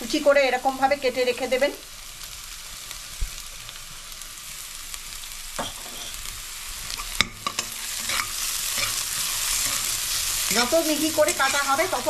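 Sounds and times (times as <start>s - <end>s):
food sizzling in a pan: 0.0s - 12.0s
spatula scraping a metal pan: 5.6s - 6.2s, 7.0s - 12.0s.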